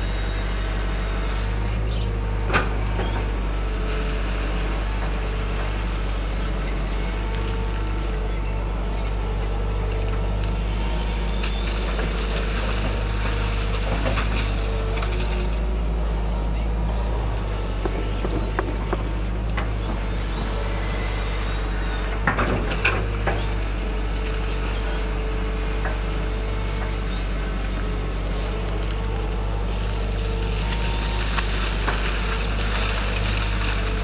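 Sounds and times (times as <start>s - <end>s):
excavator diesel engine running: 0.0s - 34.0s
hydraulic whine: 0.0s - 34.0s
sharp cracks and knocks: 17.8s - 20.0s.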